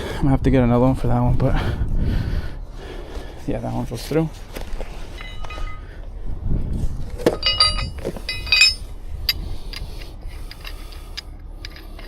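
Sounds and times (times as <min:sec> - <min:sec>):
metal rigging clinking and ringing: 0:05.1 - 0:06.0, 0:07.3 - 0:09.4.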